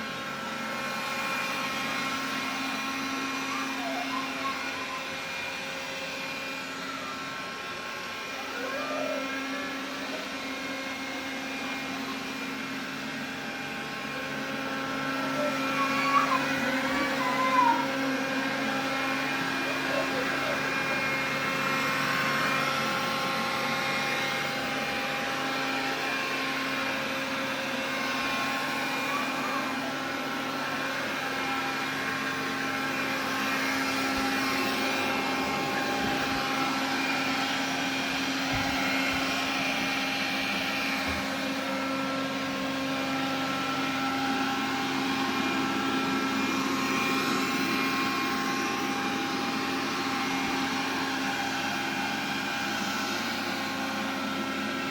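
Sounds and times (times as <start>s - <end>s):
vacuum cleaner airflow rush: 0.0s - 54.9s
vacuum motor whine: 0.0s - 54.9s.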